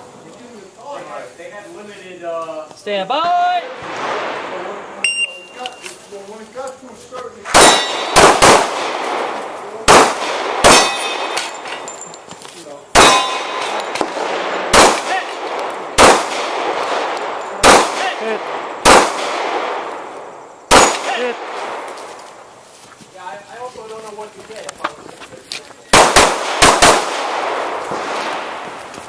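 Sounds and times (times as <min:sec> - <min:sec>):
handgun shots with ringing tail: 0:07.5 - 0:09.3, 0:09.9 - 0:11.7, 0:13.0 - 0:18.1, 0:20.7 - 0:21.8, 0:26.0 - 0:28.5.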